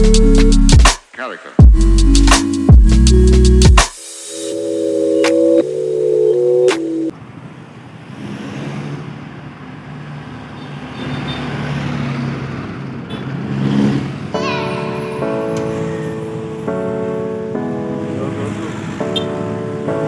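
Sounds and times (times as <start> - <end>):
background music: 0.0 - 7.1, 14.3 - 20.0
road and wind noise: 7.1 - 20.0.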